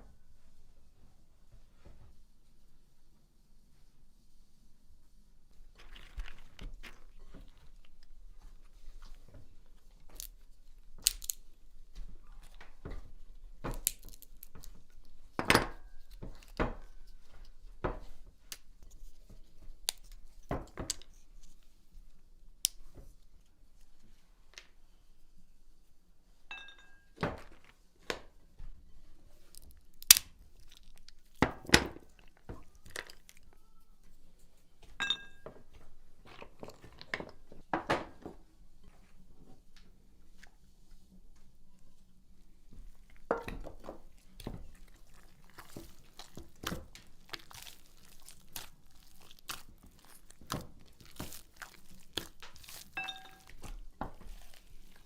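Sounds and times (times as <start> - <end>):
packaging crinkling and tearing: 13.8 - 14.7, 44.8 - 53.6.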